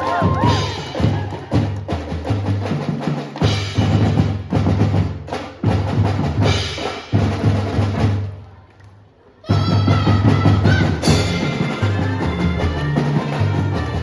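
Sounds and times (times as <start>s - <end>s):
snare drum strikes and rolls: 0.0s - 8.2s
marching bass drums: 0.0s - 8.3s, 9.5s - 14.0s.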